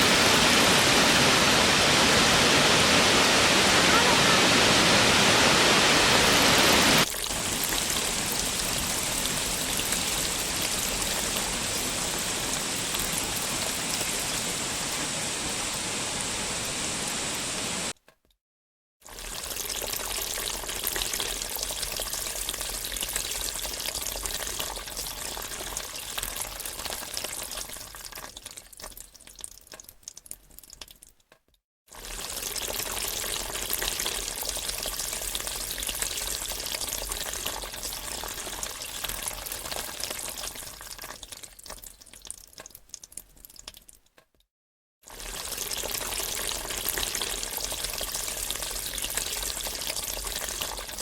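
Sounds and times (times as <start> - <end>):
waterfall rushing: 0.0 - 7.0, 10.8 - 17.9.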